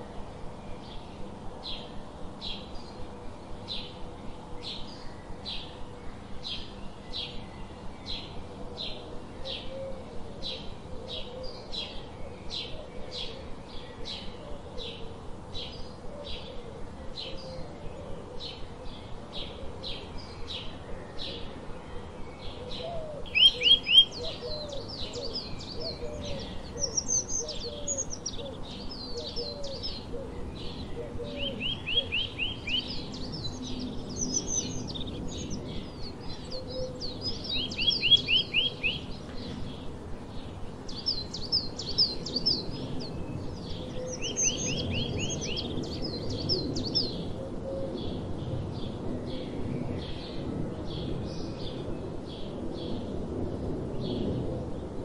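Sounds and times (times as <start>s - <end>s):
small birds chirping: 15.6s - 47.4s.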